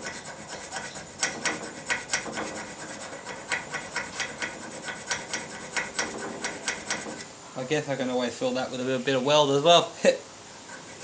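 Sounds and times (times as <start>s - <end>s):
hand file rasping on steel: 0.0s - 7.3s, 10.7s - 11.0s.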